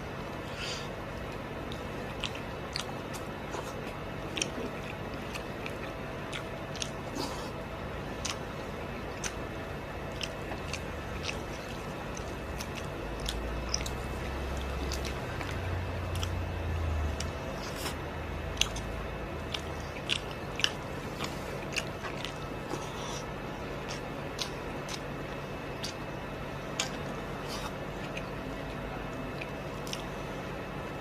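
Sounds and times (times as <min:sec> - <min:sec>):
close chewing with mouth clicks: 0:00.5 - 0:30.4.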